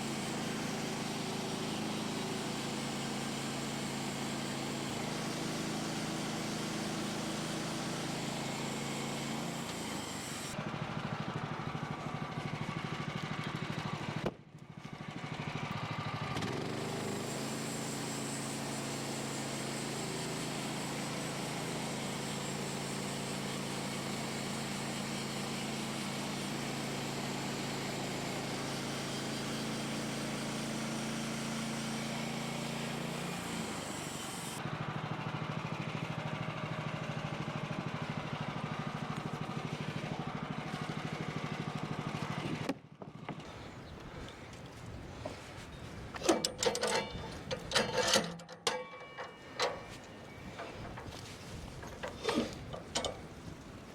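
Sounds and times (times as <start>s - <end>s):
gas engine running under load: 0.0s - 53.9s
saw blade hissing through wood: 28.0s - 34.6s, 52.1s - 53.9s.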